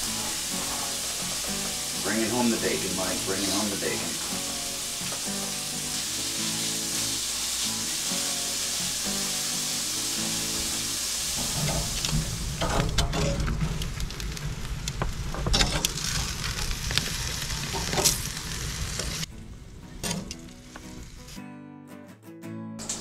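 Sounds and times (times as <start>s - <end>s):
bacon sizzling in a skillet: 0.0s - 19.3s
chicken sizzling on a grill: 0.0s - 21.4s
low rumble: 11.0s - 21.3s.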